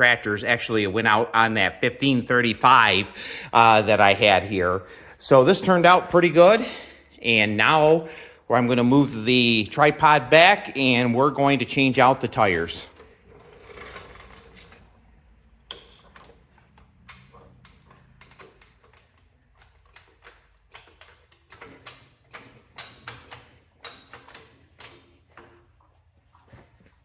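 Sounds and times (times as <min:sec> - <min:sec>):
handling clicks and knocks: 0:15.6 - 0:25.8.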